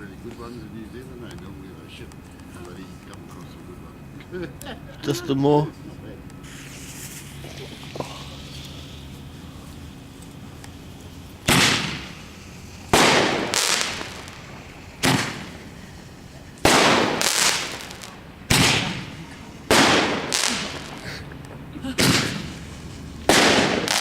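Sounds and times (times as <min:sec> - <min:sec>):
fireworks bangs: 0:06.4 - 0:24.0.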